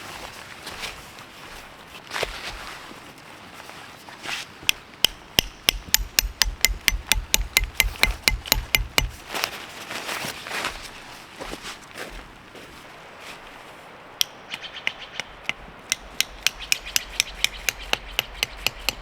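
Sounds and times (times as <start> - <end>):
hammer striking metal: 5.0 - 9.2, 14.2 - 19.0
soft rustling: 9.1 - 14.1.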